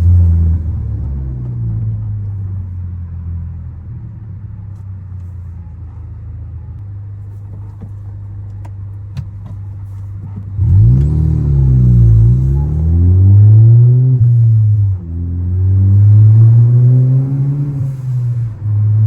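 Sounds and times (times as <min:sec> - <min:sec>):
car engine revving: 0:00.0 - 0:02.5, 0:10.3 - 0:19.0.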